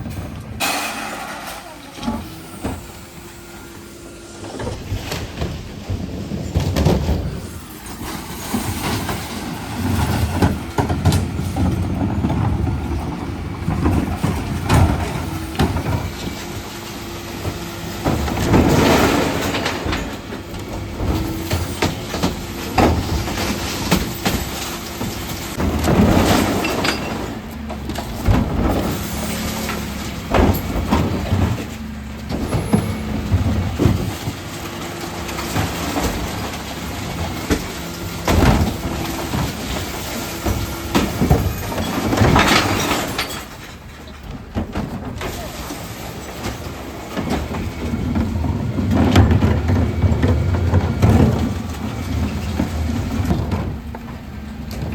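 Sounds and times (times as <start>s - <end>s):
bins clattering and knocking: 0.0s - 54.9s
truck engine and hydraulic lift hum: 0.0s - 54.9s.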